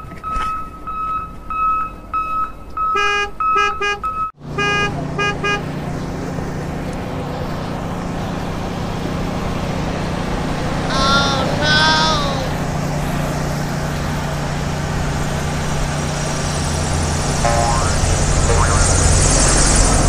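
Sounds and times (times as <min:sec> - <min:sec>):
low engine-like hum: 0:04.3 - 0:20.0
high electronic beeps: 0:17.3 - 0:19.5.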